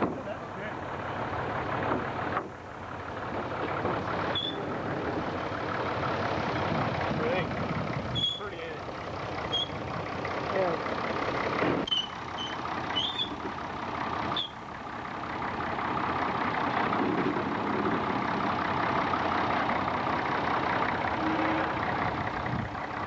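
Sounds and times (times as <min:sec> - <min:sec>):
sawmill machinery running: 0:00.0 - 0:23.0
short high squeals: 0:04.3 - 0:04.7, 0:08.1 - 0:08.6, 0:09.4 - 0:09.8, 0:11.8 - 0:13.4, 0:14.3 - 0:14.6.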